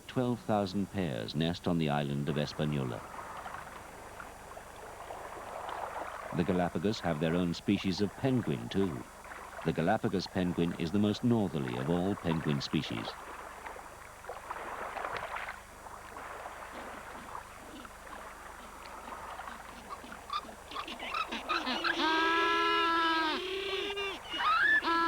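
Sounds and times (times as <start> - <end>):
faint water noise: 0.0 - 25.0
penguins calling: 18.6 - 25.0.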